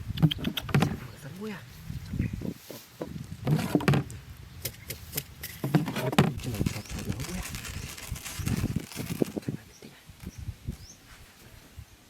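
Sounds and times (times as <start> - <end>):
objects being handled: 5.4 - 9.6.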